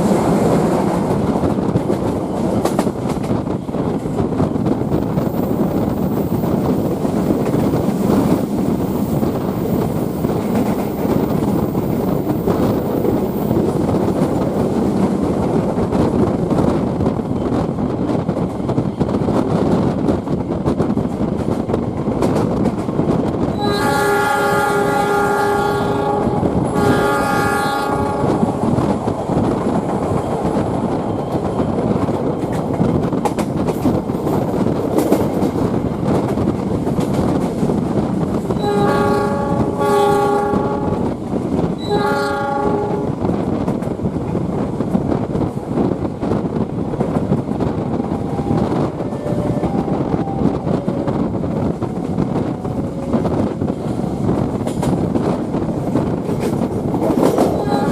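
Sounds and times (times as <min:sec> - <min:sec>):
train rumbling on rails: 0:00.0 - 0:57.9
train horn blasts: 0:23.5 - 0:28.6, 0:38.6 - 0:41.1, 0:41.8 - 0:43.2, 0:48.3 - 0:51.3, 0:57.5 - 0:57.9.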